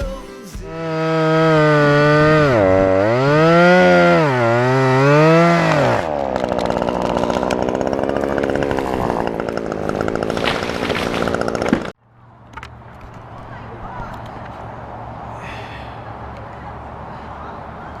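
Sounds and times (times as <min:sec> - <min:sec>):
chainsaw revving and cutting wood: 0:00.7 - 0:12.0.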